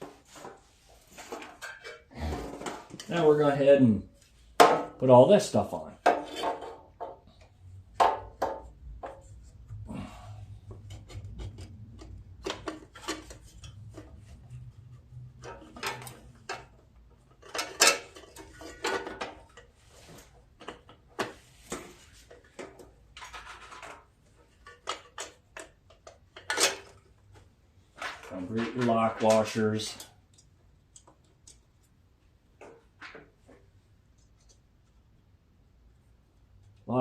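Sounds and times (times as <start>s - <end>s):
metal parts clinking and scraping: 17.3s - 19.7s, 23.1s - 27.1s.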